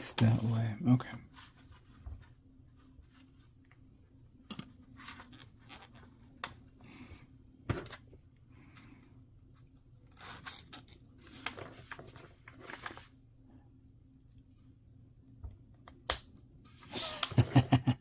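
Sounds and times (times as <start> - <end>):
plastic parts rustling and scraping: 10.0 - 13.2.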